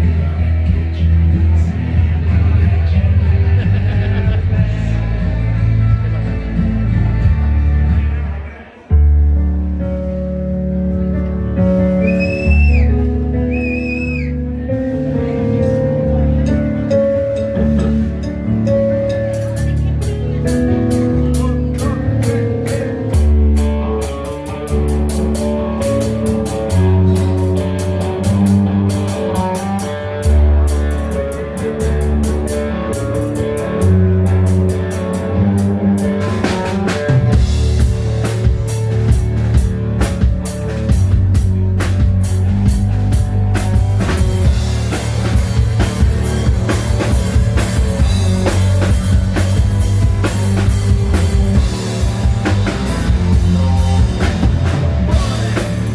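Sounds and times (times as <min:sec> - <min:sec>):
hard rock band playing: 0:11.5 - 0:55.9
drum kit beat: 0:11.9 - 0:14.4, 0:16.4 - 0:55.9.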